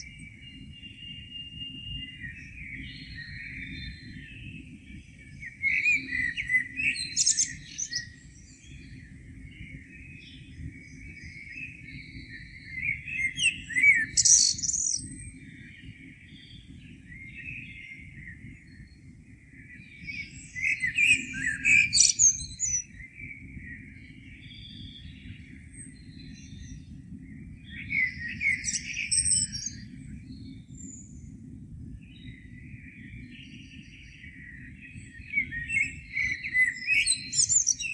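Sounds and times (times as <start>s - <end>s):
soft bird twittering: 0.0s - 31.4s, 32.0s - 37.9s
songbird song bursts: 0.0s - 37.9s.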